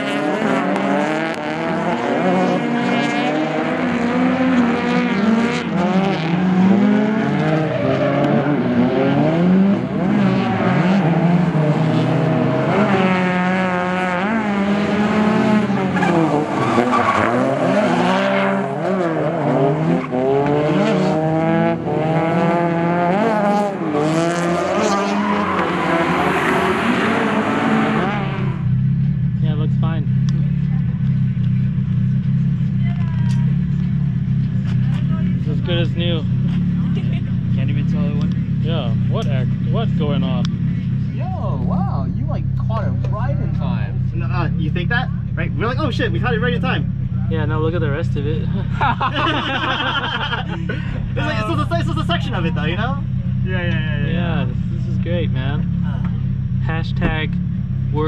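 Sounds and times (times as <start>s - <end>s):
car engine revving hard: 0.0s - 32.7s, 43.3s - 58.0s
tyre squeal: 24.8s - 26.7s.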